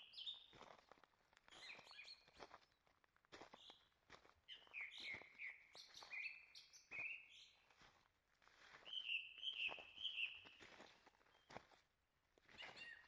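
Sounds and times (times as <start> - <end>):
soft footsteps on trail: 0.1 - 13.0
songbird singing: 4.5 - 7.6, 8.9 - 10.6, 12.6 - 13.0.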